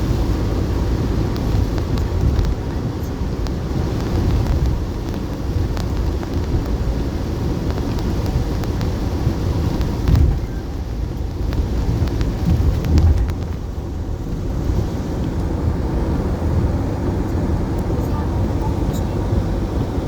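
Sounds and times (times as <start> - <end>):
low rumbling noise: 0.0 - 20.0
faint clicks: 9.7 - 15.5.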